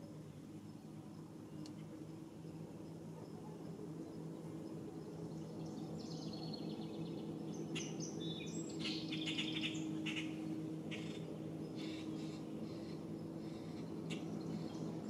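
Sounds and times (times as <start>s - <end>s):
steady low hum: 0.0s - 15.0s
birds chirping and trilling: 4.8s - 15.0s.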